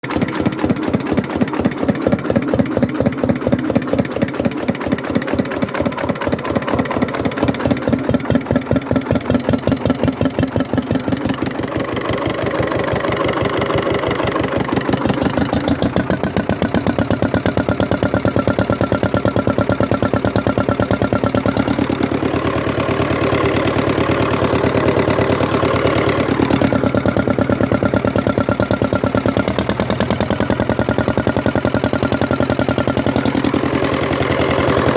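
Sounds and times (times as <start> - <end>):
diesel engine chugging: 0.0 - 34.9.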